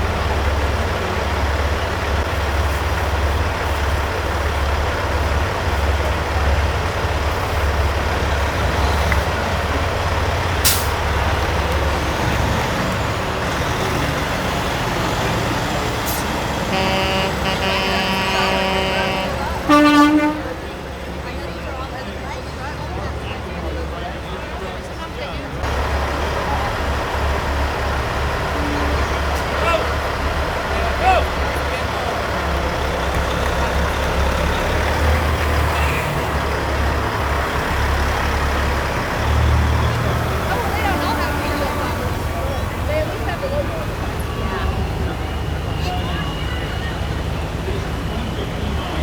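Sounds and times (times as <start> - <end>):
street noise: 0.0 - 49.0
truck engines running: 0.0 - 49.0
truck horn chord: 16.6 - 20.7.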